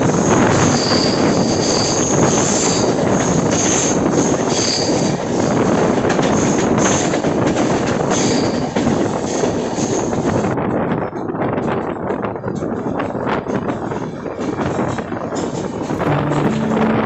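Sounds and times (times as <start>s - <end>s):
train rumbling on rails: 0.0s - 17.0s
train wheels squealing: 0.1s - 5.6s, 8.0s - 10.4s.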